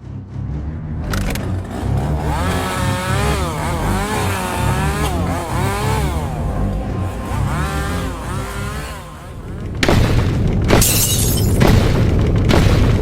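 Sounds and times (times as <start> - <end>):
chainsaw revving: 1.1 - 10.6.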